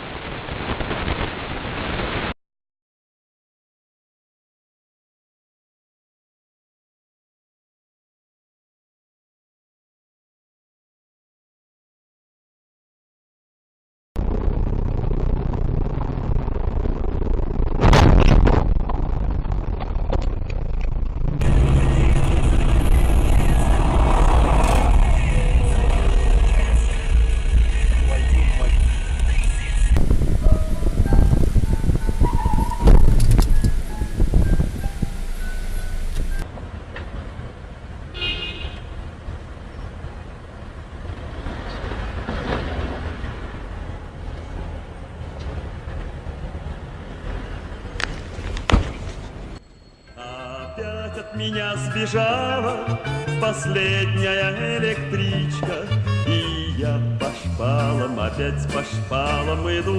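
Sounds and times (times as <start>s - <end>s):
loud crash: 14.2s - 36.4s
car road and engine rumble: 14.2s - 49.6s
car horn toot: 38.2s - 38.9s.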